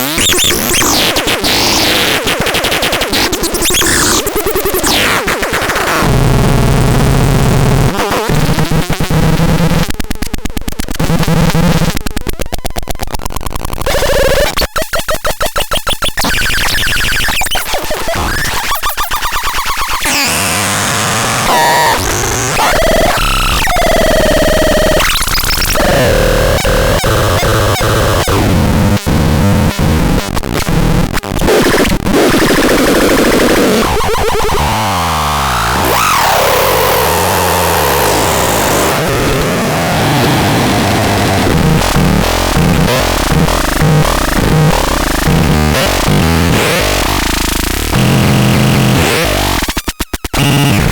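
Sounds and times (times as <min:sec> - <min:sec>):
harsh electronic buzzy tones: 0:00.0 - 0:09.8, 0:13.8 - 0:50.9
fast stuttering electronic pulse: 0:21.5 - 0:28.4, 0:41.1 - 0:49.7.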